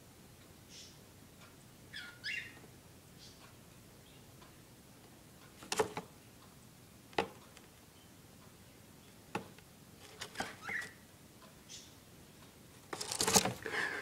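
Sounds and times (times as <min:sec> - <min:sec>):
bird squeak: 0:10.5 - 0:11.0.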